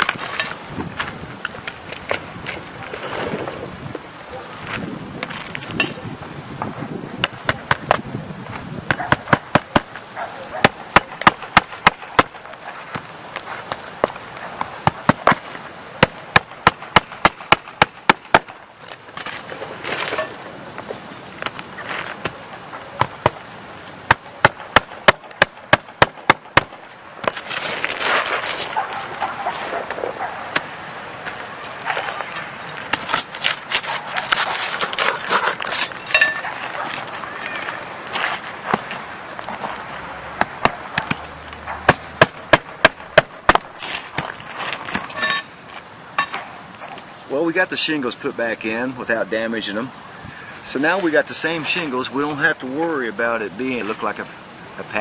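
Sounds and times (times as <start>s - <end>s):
shingles scraping and rustling: 0.0s - 6.1s, 9.4s - 24.8s, 26.2s - 41.3s, 42.3s - 47.1s
hammer striking nails: 10.6s - 12.4s, 13.7s - 15.4s, 16.0s - 18.6s, 24.1s - 26.8s, 41.9s - 43.7s.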